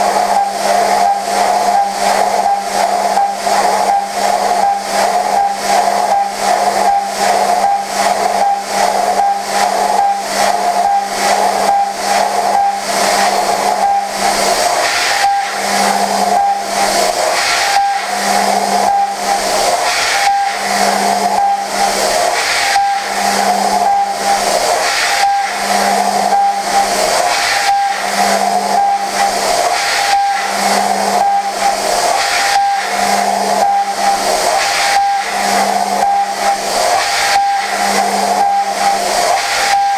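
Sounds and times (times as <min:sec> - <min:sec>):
lower machine tone: 0:00.0 - 0:39.9
milling machine cutting tone: 0:00.0 - 0:39.9
loud hiss: 0:29.1 - 0:38.1.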